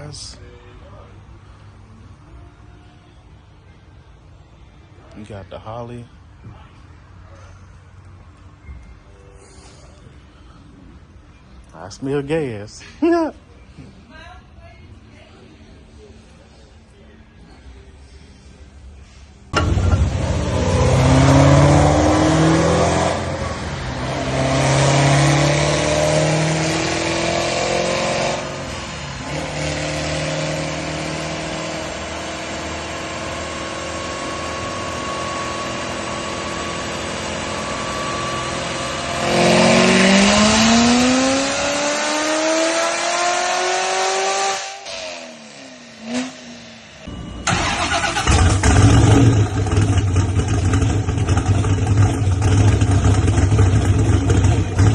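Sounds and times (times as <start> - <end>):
car engine revving: 19.6 - 54.9.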